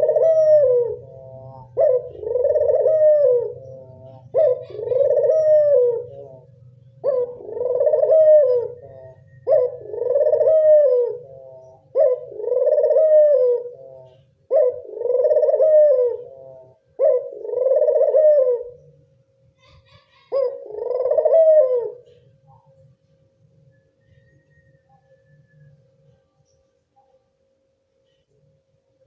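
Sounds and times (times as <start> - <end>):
dove cooing: 0.0 - 23.0
faint steady hum: 0.0 - 29.0.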